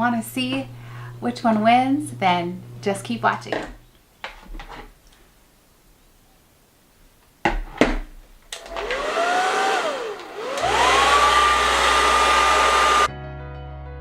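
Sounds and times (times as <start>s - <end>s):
hair dryer whining: 8.5s - 13.1s.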